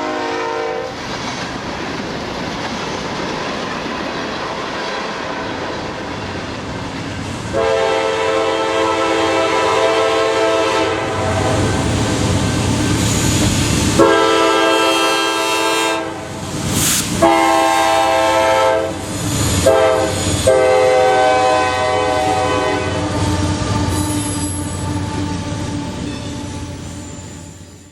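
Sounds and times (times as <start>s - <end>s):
locomotive air horn blasts: 0.0s - 1.0s, 7.5s - 11.9s, 14.0s - 16.3s, 17.2s - 19.0s, 19.6s - 25.7s
train rumble and rail clatter: 0.0s - 27.9s.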